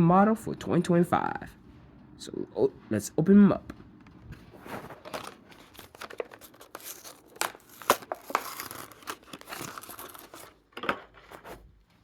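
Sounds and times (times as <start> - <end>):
plastic packaging tearing open: 4.7 - 11.6.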